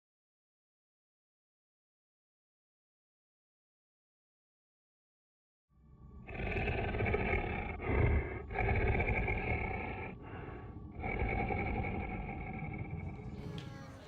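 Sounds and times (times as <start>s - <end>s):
deep animal growls: 5.9s - 14.0s.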